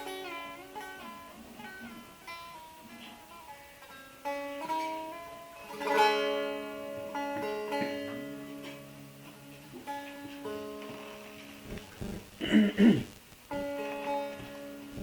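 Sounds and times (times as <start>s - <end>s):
plucked long-necked lute: 0.0s - 12.6s, 13.5s - 15.0s.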